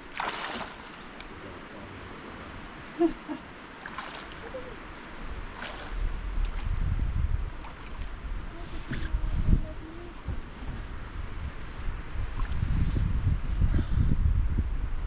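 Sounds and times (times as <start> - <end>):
canoe paddle strokes in water: 0.0 - 2.6, 3.8 - 6.8, 7.4 - 13.2
steady wash of water: 0.0 - 13.6
wind rumbling on microphone: 0.0 - 15.0.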